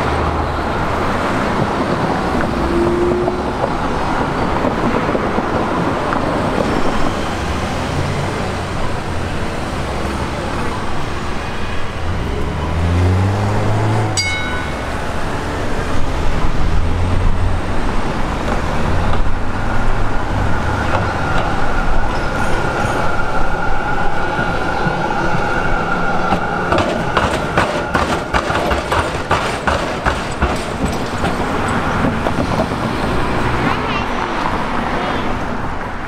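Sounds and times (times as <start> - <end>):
electric train rumbling with whine: 0.0 - 33.8
train wheels clicking on track: 24.4 - 33.8.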